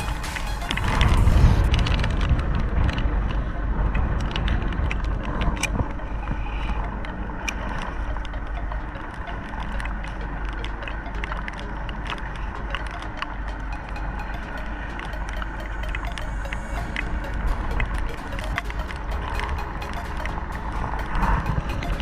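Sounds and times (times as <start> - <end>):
boat engine rumble: 0.0 - 22.0
clicks and ticks from gear: 0.8 - 17.0.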